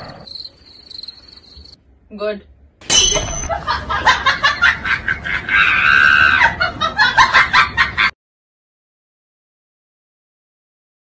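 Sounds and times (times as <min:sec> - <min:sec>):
loud laughter: 0:03.4 - 0:08.2
high drawn-out cry: 0:05.4 - 0:06.6.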